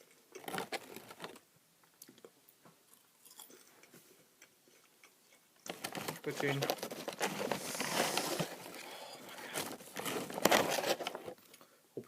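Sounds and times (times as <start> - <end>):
chewing crispy snack: 2.9 - 5.4.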